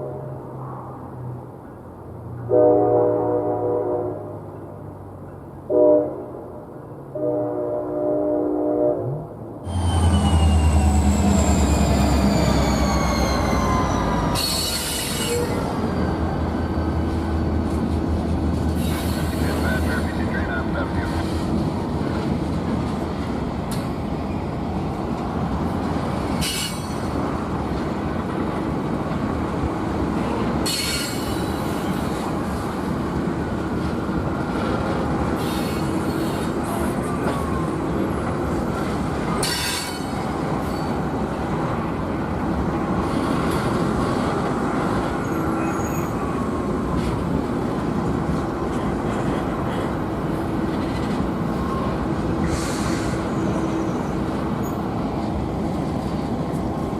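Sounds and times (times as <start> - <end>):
train wheels rumbling on rail: 9.5 - 56.9
high-pitched wheel squeal: 9.7 - 17.0, 45.2 - 46.3.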